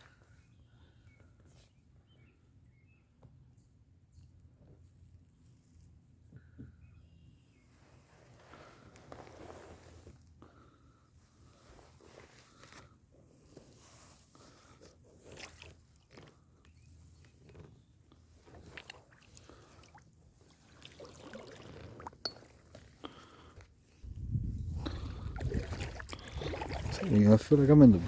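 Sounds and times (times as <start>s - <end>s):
low rumble: 24.0s - 27.0s.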